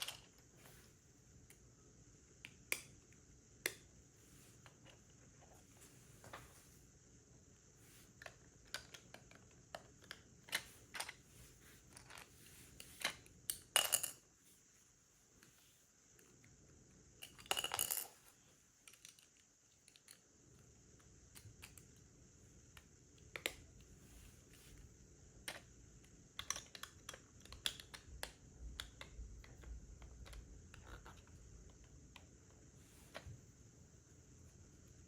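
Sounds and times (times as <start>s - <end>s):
plastic toy bricks clicking: 26.4s - 31.8s.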